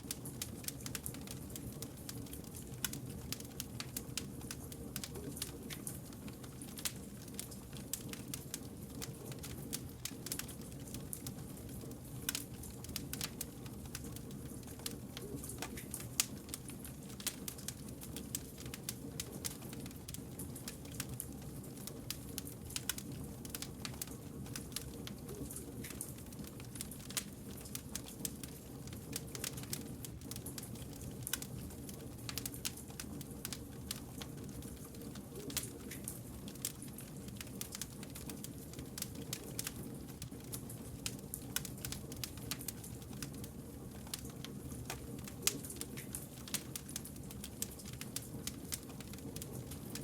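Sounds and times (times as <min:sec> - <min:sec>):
low rumble of flames: 0:00.0 - 0:50.0
campfire logs crackling: 0:32.3 - 0:50.0.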